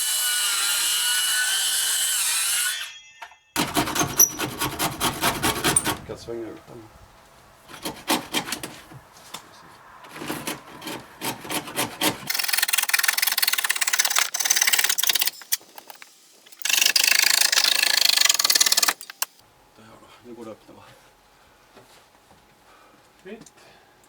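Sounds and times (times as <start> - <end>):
wood being scraped by hand: 3.6 - 6.1, 7.6 - 16.0.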